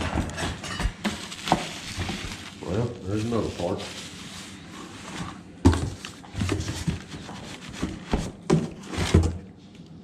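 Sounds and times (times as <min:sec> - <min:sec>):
packaging rustling: 0:01.0 - 0:08.1
knocks in cardboard box: 0:07.8 - 0:09.4.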